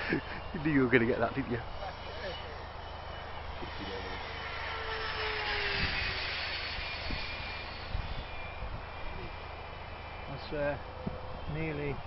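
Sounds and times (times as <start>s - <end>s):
model aircraft flying past: 1.4s - 10.5s.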